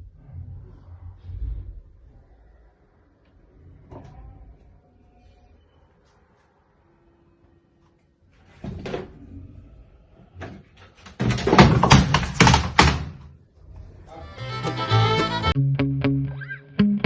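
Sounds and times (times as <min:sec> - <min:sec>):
loud dense clatter of knocks: 0:10.4 - 0:13.3
scattered knocks and thumps: 0:10.4 - 0:13.3.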